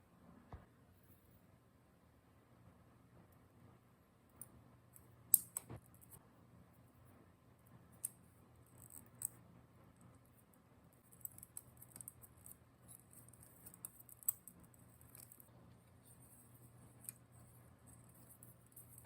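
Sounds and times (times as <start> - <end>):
low steady hum: 0.0 - 19.0
small tool clicks: 5.3 - 5.8
light scratching on plastic: 10.0 - 19.0.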